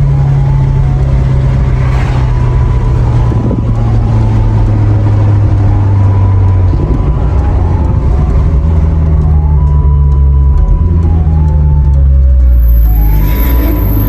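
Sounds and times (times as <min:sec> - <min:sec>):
car engine and exhaust drone: 0:00.0 - 0:14.0.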